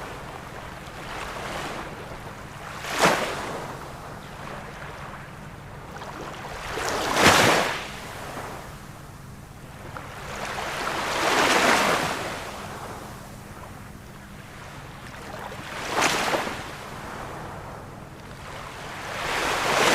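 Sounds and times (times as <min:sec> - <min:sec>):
ocean waves breaking: 0:00.0 - 0:08.7, 0:09.8 - 0:19.9.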